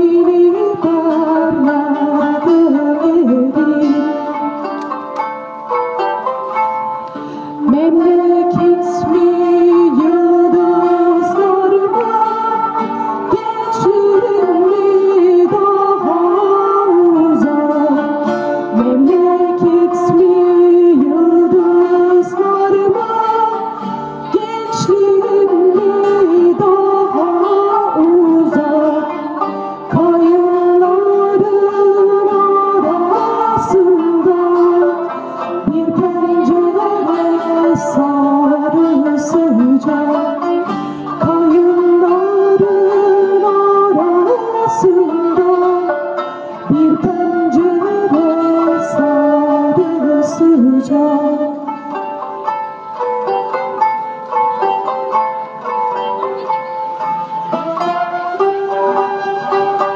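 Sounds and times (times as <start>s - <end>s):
person singing: 0.0s - 59.9s
plucked strings: 0.0s - 59.9s.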